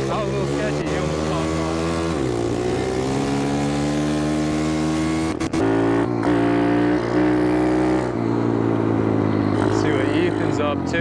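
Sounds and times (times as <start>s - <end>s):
pit bike engine revving: 0.0s - 11.0s.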